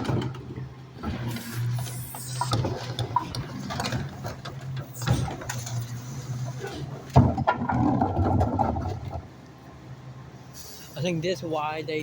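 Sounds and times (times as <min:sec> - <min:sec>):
clanks and knocks: 0:00.0 - 0:09.4
garbage truck engine humming: 0:00.0 - 0:12.0.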